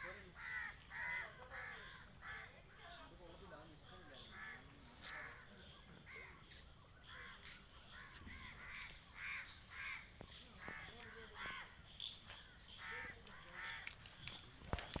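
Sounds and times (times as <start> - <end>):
crows cawing: 0.0 - 2.5, 4.3 - 6.4, 7.0 - 11.8, 12.7 - 14.3.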